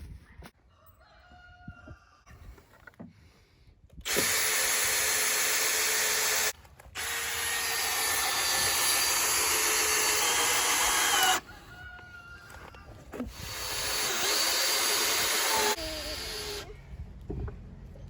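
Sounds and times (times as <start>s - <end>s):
power drill running: 4.1s - 11.4s, 13.3s - 16.7s.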